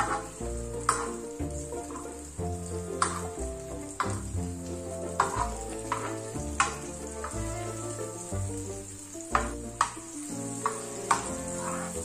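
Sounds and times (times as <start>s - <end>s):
background music with held chords: 0.0s - 12.0s
food sizzling in a pan: 0.0s - 12.0s
metal spoon clicking against pan: 3.0s - 3.3s, 4.0s - 4.2s.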